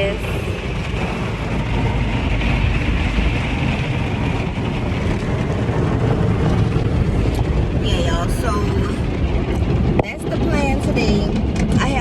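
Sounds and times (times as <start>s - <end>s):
car wash machinery running: 0.0s - 12.0s.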